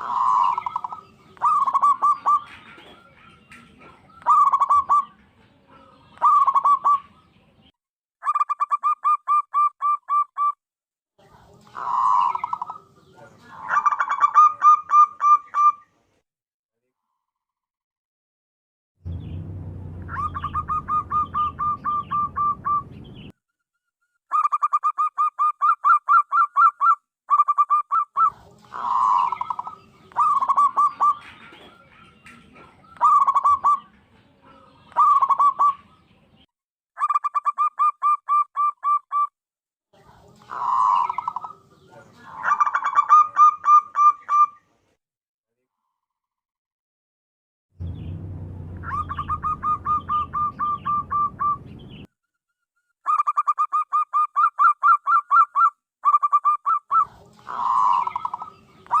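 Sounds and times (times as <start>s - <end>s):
dove cooing: 0.0s - 7.3s, 11.6s - 15.8s, 20.1s - 22.9s, 24.3s - 36.0s, 40.4s - 44.6s, 48.8s - 51.8s, 53.1s - 59.0s
low hum: 19.0s - 23.2s, 47.8s - 52.0s.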